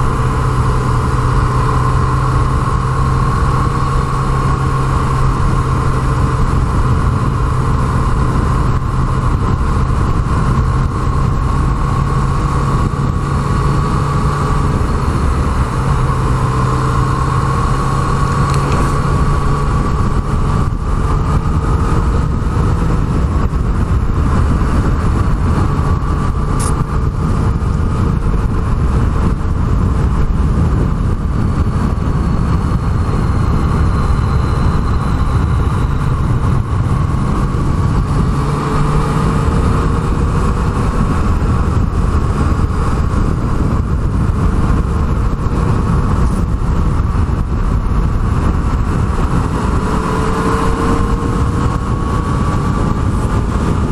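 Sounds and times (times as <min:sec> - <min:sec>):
constant rushing noise: 0:00.0 - 0:53.9
motorcycle engine cruising: 0:00.0 - 0:53.9.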